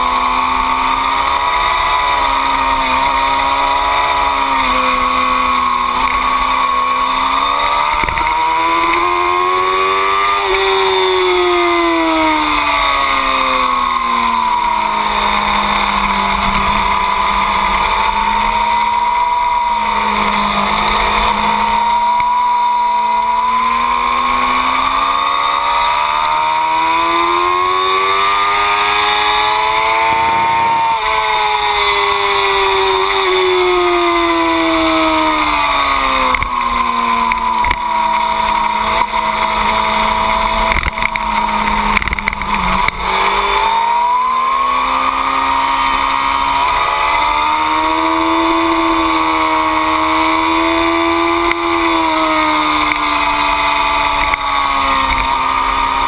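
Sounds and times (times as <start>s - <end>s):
motorcycle engine revving: 0.0s - 56.0s
wind noise: 29.2s - 33.5s.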